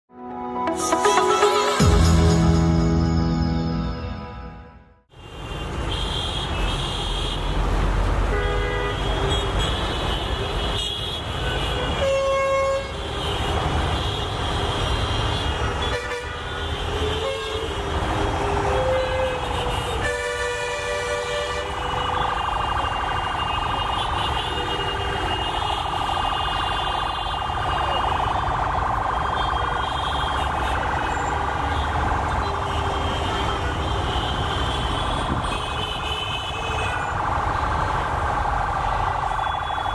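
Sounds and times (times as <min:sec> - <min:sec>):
high-pitched train noise: 0:00.4 - 0:04.8.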